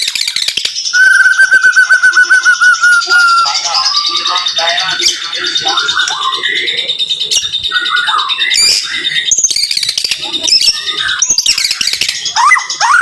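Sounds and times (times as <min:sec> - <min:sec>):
songbird singing rapid phrases: 0:00.0 - 0:13.0.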